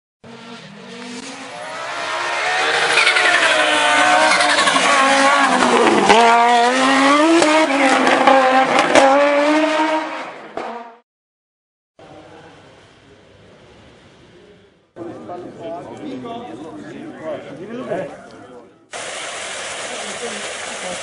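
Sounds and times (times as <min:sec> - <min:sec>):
rally car engine revving: 0:00.2 - 0:11.0.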